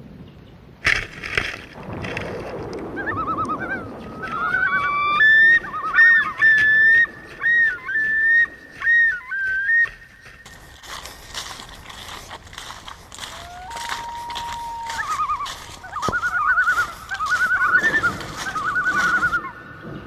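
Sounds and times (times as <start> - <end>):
warbling whistle-like trills: 2.8 - 10.4, 13.3 - 20.0.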